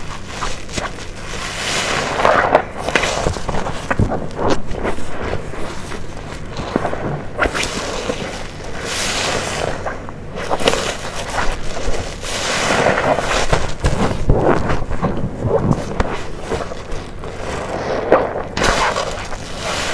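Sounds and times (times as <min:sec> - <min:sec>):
soapy sponge squelching: 0:00.0 - 0:19.9.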